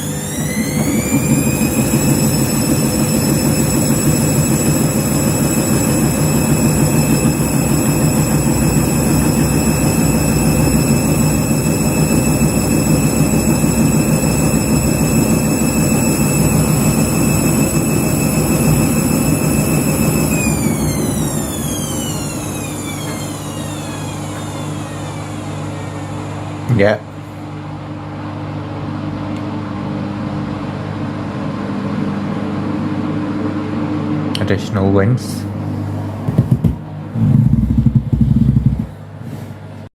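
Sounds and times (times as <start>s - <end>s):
washing machine spinning: 0.0s - 26.8s, 35.6s - 39.3s.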